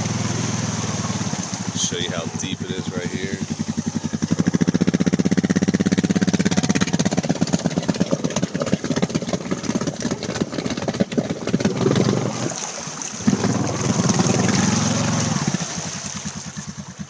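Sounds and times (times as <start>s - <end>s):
small engine revving: 0.0s - 17.0s.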